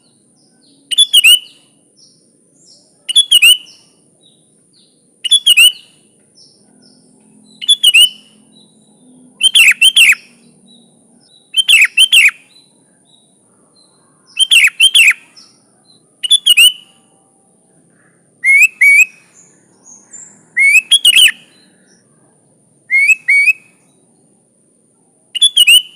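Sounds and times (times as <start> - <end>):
bird singing chirpy phrases: 0.0 - 24.5, 25.4 - 25.9.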